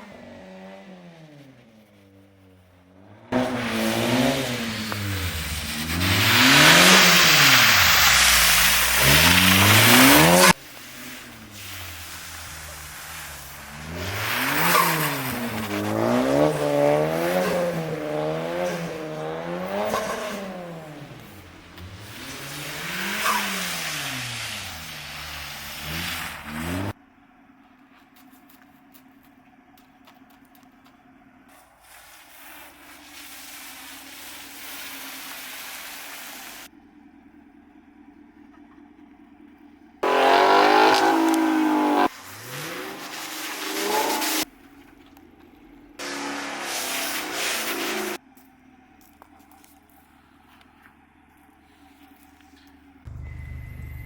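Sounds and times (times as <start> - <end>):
car engine revving: 2.8 - 27.0, 40.0 - 44.5, 45.9 - 48.2.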